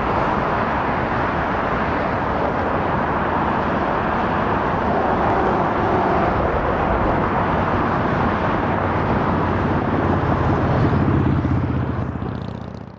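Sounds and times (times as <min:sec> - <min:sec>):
jet engines running: 0:00.0 - 0:12.6.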